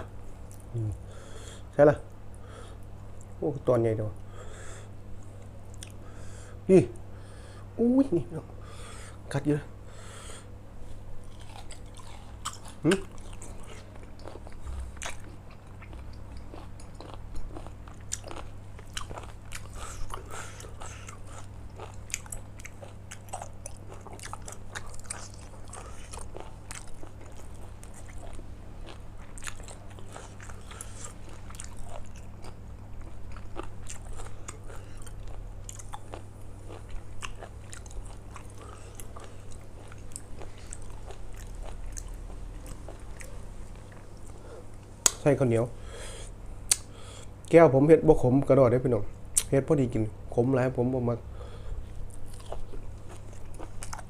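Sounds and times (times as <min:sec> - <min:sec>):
person chewing food: 0:05.1 - 0:06.2, 0:10.4 - 0:45.2, 0:46.1 - 0:47.5, 0:51.4 - 0:54.0.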